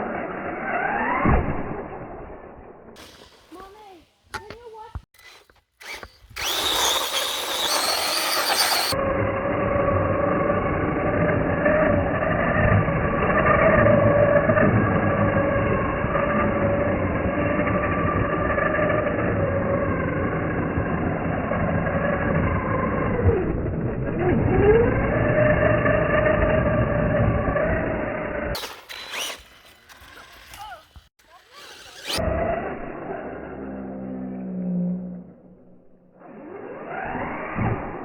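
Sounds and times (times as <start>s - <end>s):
electric motor whining: 5.2s - 35.2s.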